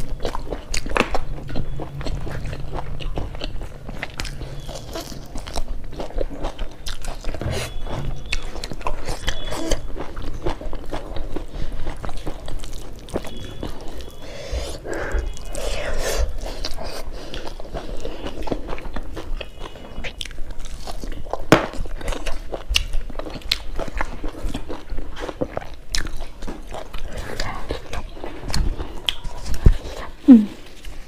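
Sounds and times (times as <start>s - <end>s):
person chewing: 0.0s - 31.0s.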